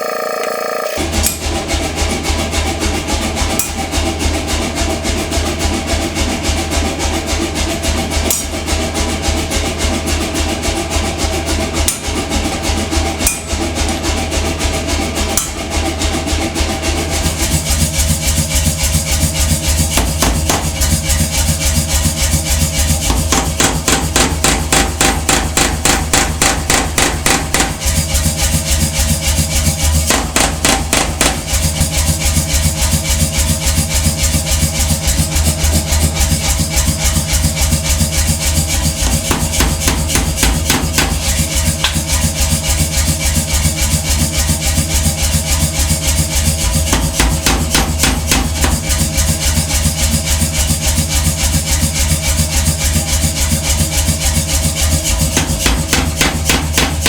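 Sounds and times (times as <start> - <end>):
motor hum: 0.0 - 2.1
power hammer pounding steel: 1.0 - 57.0.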